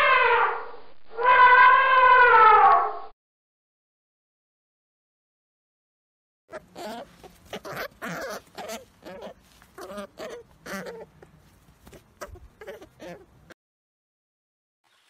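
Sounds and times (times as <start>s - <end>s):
animal calling in short cries: 1.2s - 2.8s.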